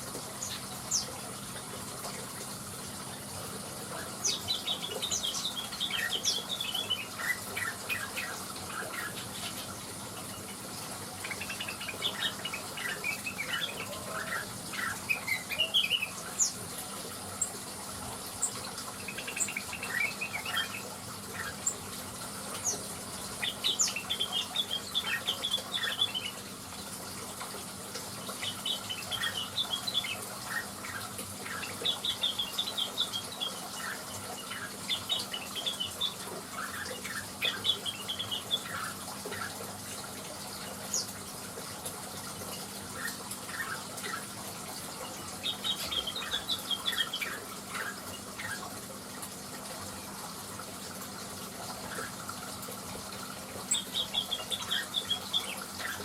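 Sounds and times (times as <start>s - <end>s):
bird chirping and twittering: 0.2s - 1.2s, 3.9s - 16.6s, 18.3s - 26.5s, 28.2s - 41.2s, 42.4s - 48.8s, 53.6s - 56.0s.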